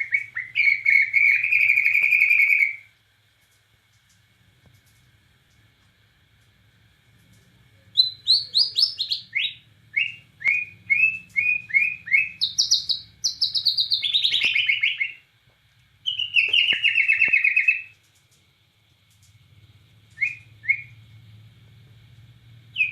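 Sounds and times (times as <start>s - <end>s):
songbird whistling and trilling: 0.0s - 2.9s, 7.9s - 15.3s, 16.0s - 17.9s, 20.2s - 21.0s.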